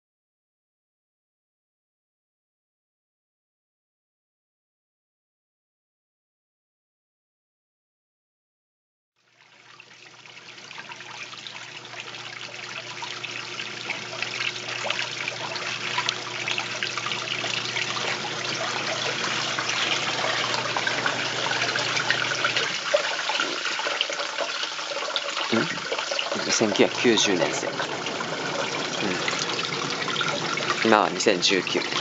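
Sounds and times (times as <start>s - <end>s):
water rushing in washing machine tub: 9.3s - 32.0s
low steady hum: 9.4s - 32.0s.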